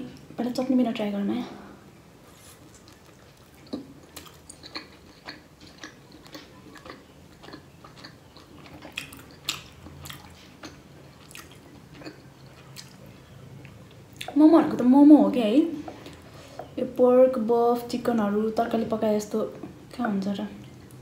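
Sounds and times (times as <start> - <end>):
person chewing dumpling: 2.2 - 14.4.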